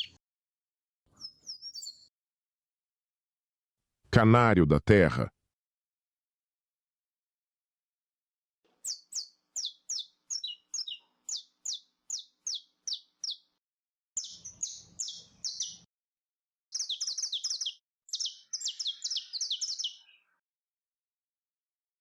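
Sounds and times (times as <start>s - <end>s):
finch singing: 0.0s - 0.2s, 1.1s - 2.1s, 8.8s - 13.6s, 14.2s - 15.9s, 16.7s - 20.4s.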